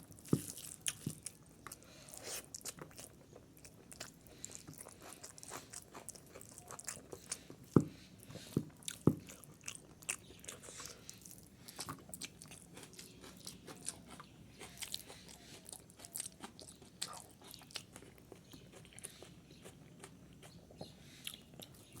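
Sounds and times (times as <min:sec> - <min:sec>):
person chewing crunchy food: 0:00.0 - 0:22.0.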